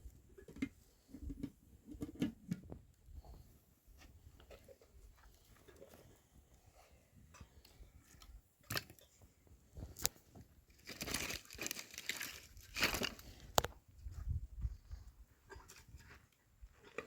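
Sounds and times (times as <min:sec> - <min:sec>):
crinkling rustling handling noise: 0:09.8 - 0:13.7.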